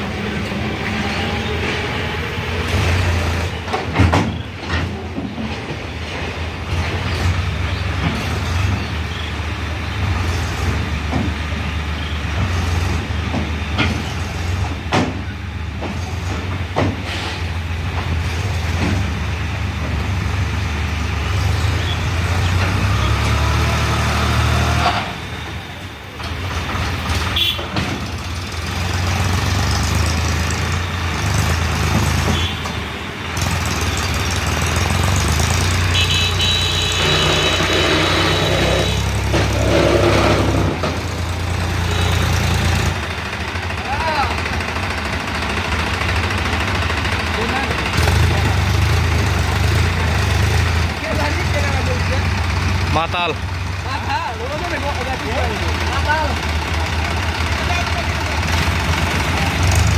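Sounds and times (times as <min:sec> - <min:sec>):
tractor diesel engine: 0:00.0 - 0:59.9
sharp knocks and clanks: 0:03.6 - 0:08.8, 0:10.7 - 0:11.6, 0:12.3 - 0:20.2, 0:26.2 - 0:30.3, 0:31.4 - 0:32.8, 0:37.0 - 0:43.4.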